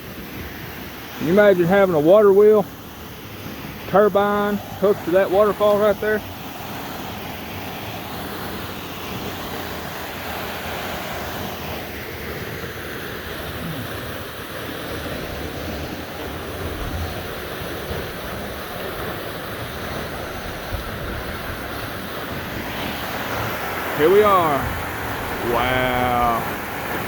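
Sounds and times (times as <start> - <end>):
waterfall rushing: 3.4 - 18.1, 21.3 - 27.0.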